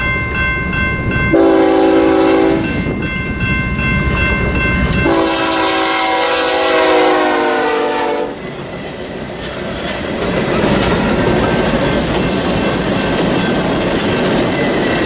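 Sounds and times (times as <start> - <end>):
locomotive horn chord: 1.3 - 2.8, 4.9 - 8.4
freight cars clattering on rails: 8.5 - 15.0.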